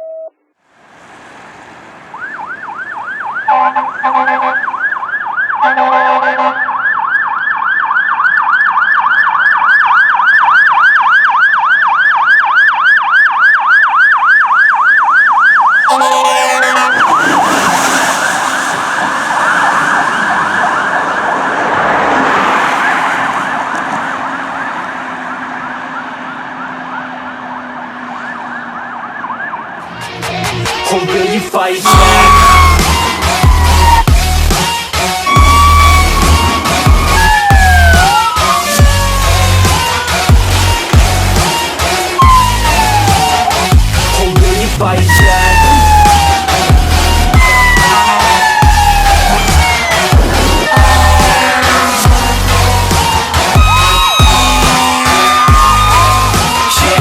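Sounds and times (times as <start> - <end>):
loud rushing of passing truck: 0.7 - 5.6, 15.8 - 57.0
fire truck siren yelping: 2.0 - 31.0, 31.8 - 57.0
horn blasts: 3.5 - 4.7, 5.6 - 6.7, 15.8 - 18.7, 31.8 - 57.0.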